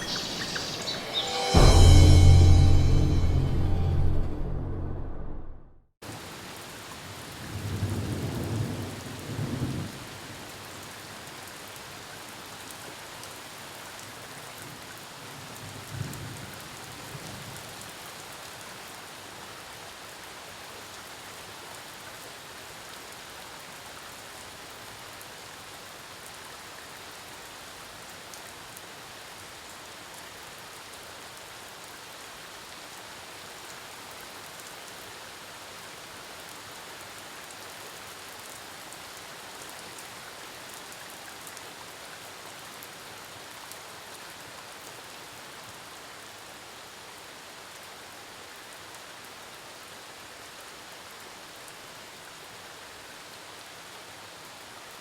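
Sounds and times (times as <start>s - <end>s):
steady rain falling: 6.0s - 55.0s.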